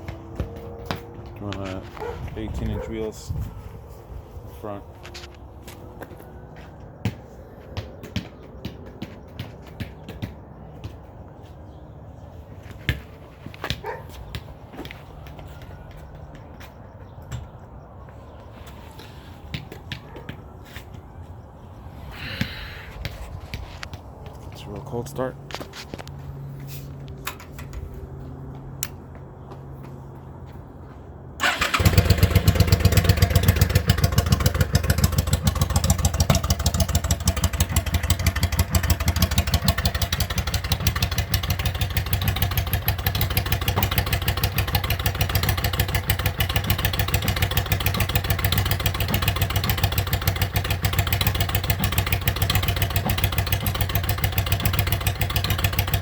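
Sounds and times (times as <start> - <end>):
motorcycle engine idling: 31.4 - 56.0.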